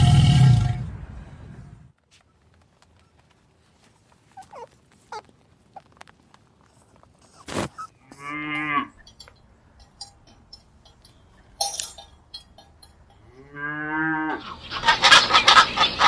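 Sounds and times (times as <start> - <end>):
faint short squeaks: 4.2 - 6.0, 6.6 - 11.1
cow mooing: 8.0 - 9.2, 13.1 - 14.5.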